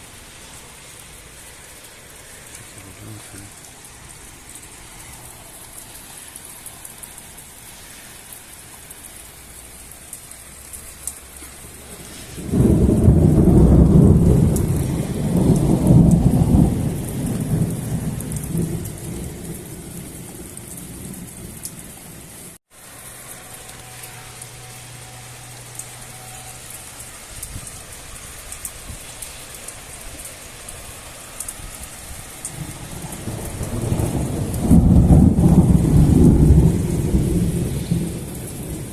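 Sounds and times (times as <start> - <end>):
heavy rain falling: 0.0 - 38.9
thunder rumbling: 11.5 - 22.6, 31.8 - 38.9.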